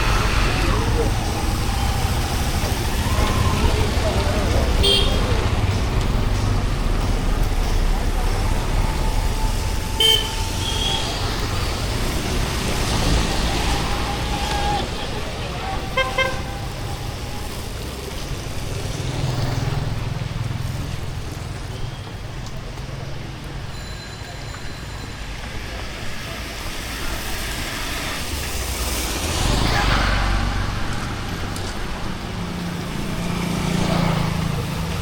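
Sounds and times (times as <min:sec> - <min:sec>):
rain hiss: 0:00.0 - 0:21.9
passing vehicles rumble: 0:00.0 - 0:35.0
car horn toots: 0:04.7 - 0:05.4, 0:10.0 - 0:11.1.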